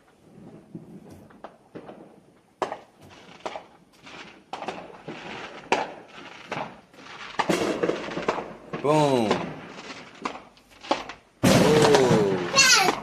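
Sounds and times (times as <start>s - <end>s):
fireworks popping and cracking: 0.0s - 13.0s.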